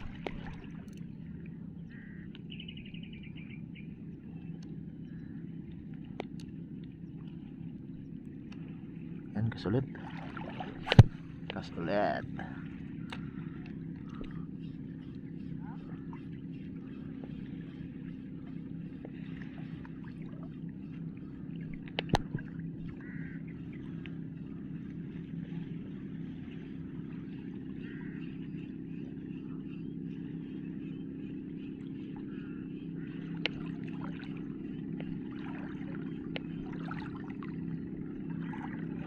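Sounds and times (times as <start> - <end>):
engine running: 0.0 - 39.0.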